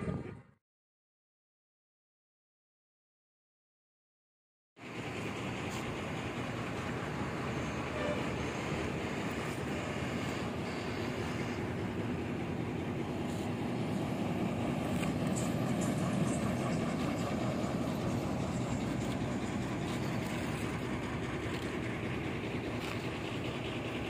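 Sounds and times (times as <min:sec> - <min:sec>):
highway traffic rumble: 0:04.8 - 0:24.0.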